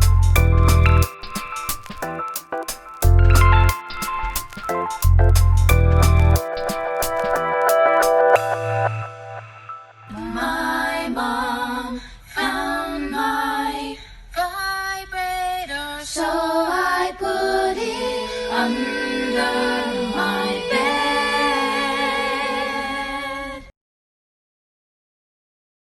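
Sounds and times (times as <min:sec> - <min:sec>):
woman singing: 0:10.1 - 0:23.7.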